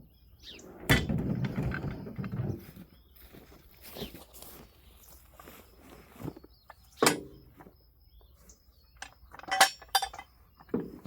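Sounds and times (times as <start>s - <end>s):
metal tools clinking on metal: 8.9s - 11.0s.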